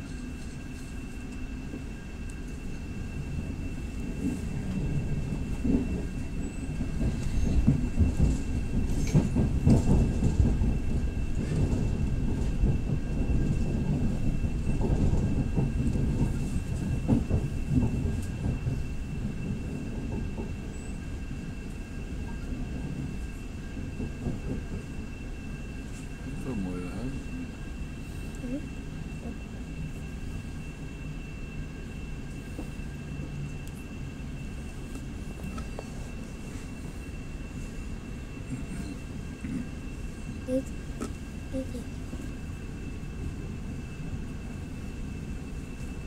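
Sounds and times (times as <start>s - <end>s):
train wheels rumbling on rail: 0.0s - 46.0s
faint high whine: 24.8s - 46.0s.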